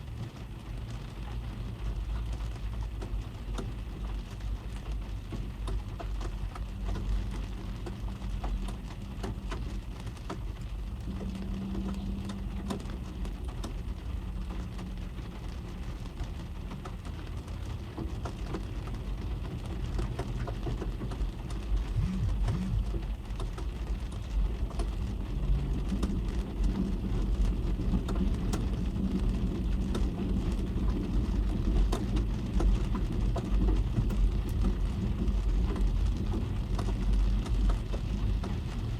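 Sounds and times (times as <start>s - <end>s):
rain on car roof: 0.0s - 38.9s
low rumble: 21.3s - 38.9s.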